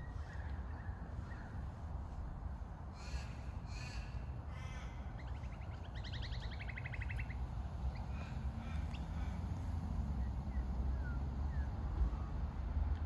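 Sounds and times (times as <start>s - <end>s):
harsh crow-like bird calls: 2.9s - 9.6s.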